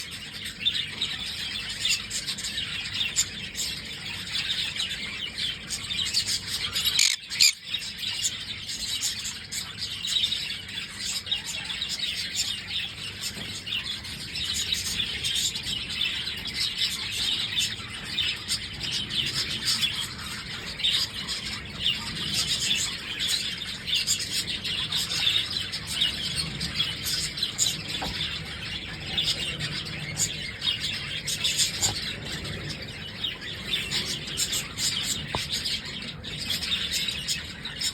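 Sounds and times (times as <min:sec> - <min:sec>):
parrot chirping and squealing: 0:06.5 - 0:07.6.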